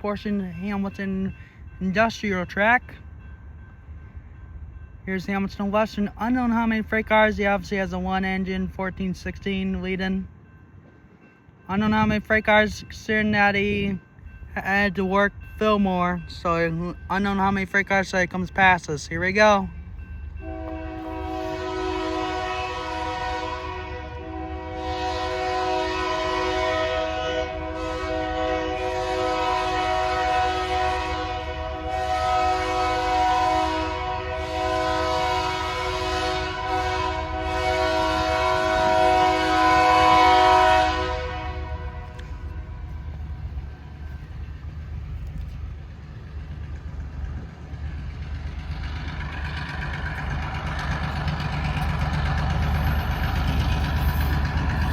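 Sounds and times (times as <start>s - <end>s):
locomotive air horn chord: 20.4s - 42.4s.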